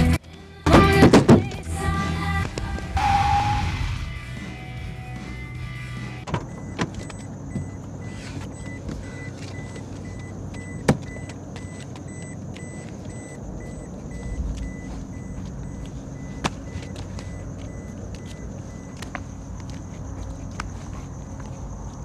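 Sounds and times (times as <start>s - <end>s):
car engine idling: 1.7s - 21.8s.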